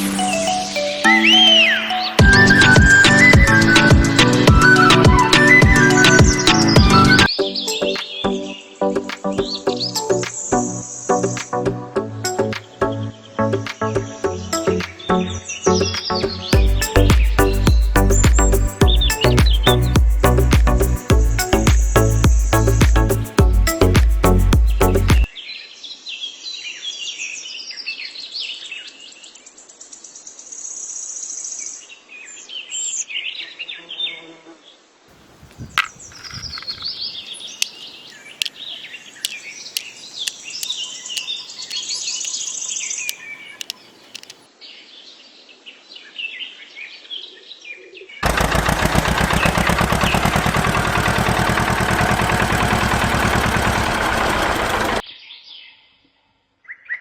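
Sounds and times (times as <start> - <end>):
small birds chirping: 13.6 - 25.3, 35.1 - 44.5
sharp clicks: 39.2 - 44.4
loud fast-pulsing buzz: 48.2 - 55.0.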